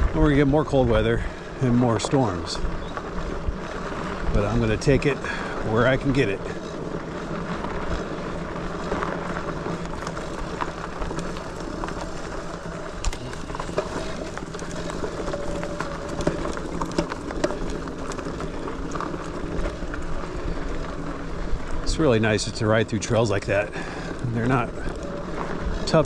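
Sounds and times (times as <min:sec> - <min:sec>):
bike knocking and rattling: 0:00.0 - 0:26.0
bike tyres rolling on dirt: 0:00.0 - 0:26.0
electric motor whine: 0:02.6 - 0:22.5.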